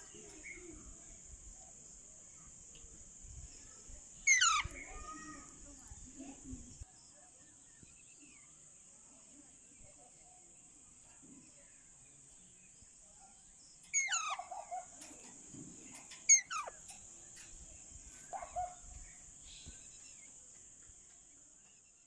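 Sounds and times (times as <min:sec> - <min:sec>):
steady high-pitched hiss: 0:00.0 - 0:22.0
parrot calling: 0:04.3 - 0:05.1, 0:13.9 - 0:15.0, 0:16.3 - 0:16.8.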